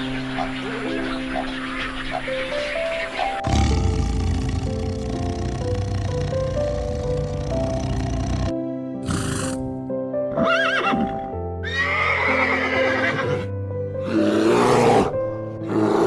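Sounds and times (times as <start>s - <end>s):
background music with held notes: 0.0s - 16.0s
horse breathy blasts: 3.4s - 9.8s
horse whinnying: 9.0s - 9.7s, 10.4s - 13.4s.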